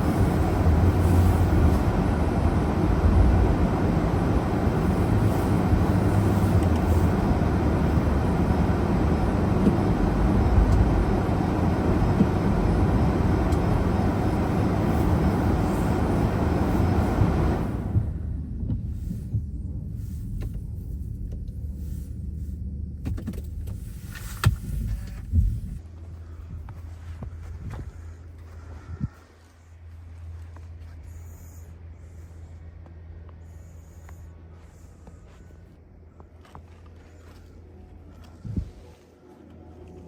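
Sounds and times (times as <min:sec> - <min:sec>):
tyre and road noise: 0:00.0 - 0:22.4
low engine hum: 0:00.0 - 0:40.0.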